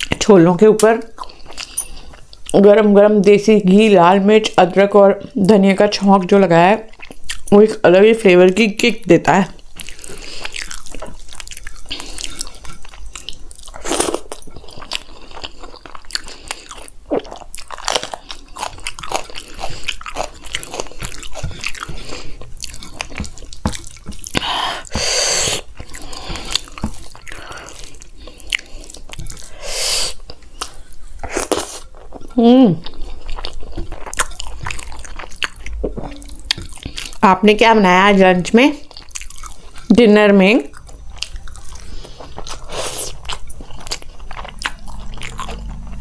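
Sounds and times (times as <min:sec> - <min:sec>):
chewing with wet mouth clicks: 0:00.8 - 0:02.6, 0:06.9 - 0:07.6, 0:09.7 - 0:24.5, 0:25.6 - 0:29.5, 0:30.2 - 0:37.2, 0:38.8 - 0:39.9, 0:40.7 - 0:46.0.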